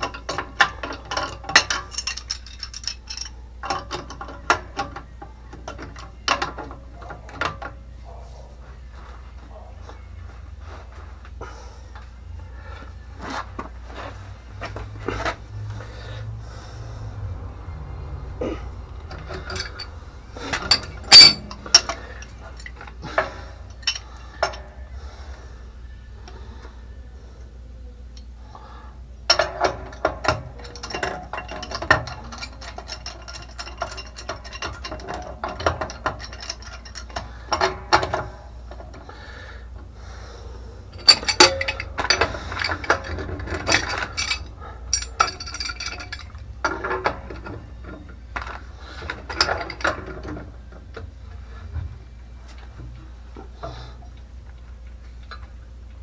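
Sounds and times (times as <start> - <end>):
hand tools knocking on metal: 19.0 - 24.7.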